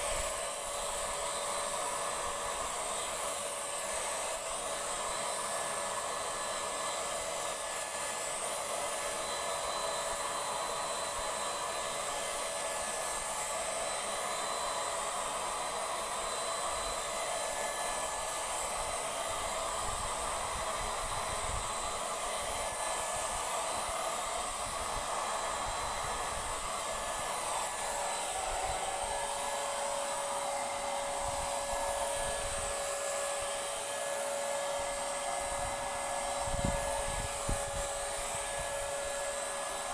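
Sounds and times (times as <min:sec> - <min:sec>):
electric paint sprayer whirring: 0:00.0 - 0:39.9.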